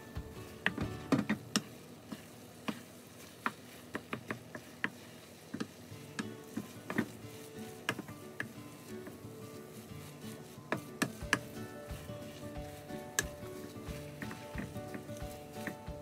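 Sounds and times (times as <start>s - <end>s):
wooden spatula scraping a wok: 0.0s - 16.0s.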